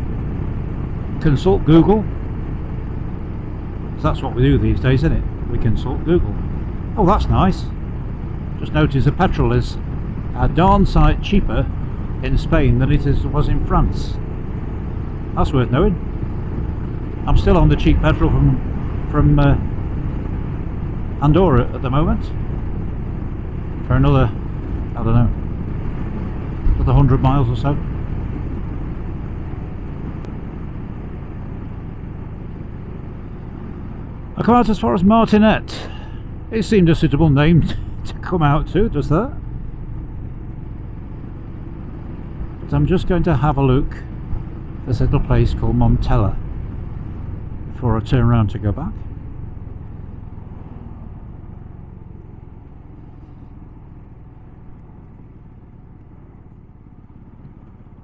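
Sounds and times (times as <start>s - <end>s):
motorcycle engine rumble: 0.0s - 58.0s
wind: 0.0s - 58.0s.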